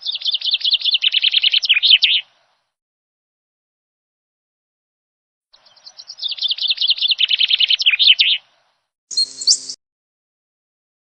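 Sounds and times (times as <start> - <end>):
small bird chirping: 0.0 - 2.2, 5.6 - 8.4, 9.1 - 9.8.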